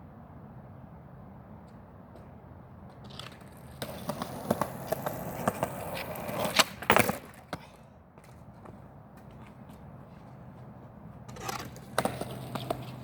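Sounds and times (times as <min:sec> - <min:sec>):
skateboard wheels rolling on pavement: 0:01.0 - 0:13.0
skateboard smacking down: 0:02.9 - 0:08.4, 0:11.2 - 0:13.0.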